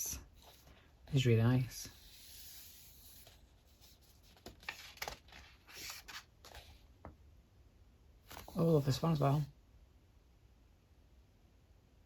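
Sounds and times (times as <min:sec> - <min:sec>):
paper pages rustling: 0:00.3 - 0:06.8, 0:08.3 - 0:09.4.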